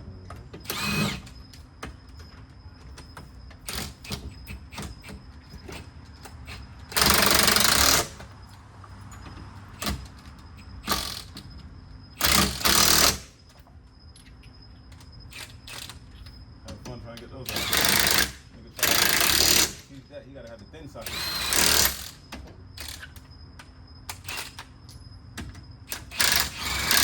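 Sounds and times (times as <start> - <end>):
impact wrench hammering: 6.9 - 8.2.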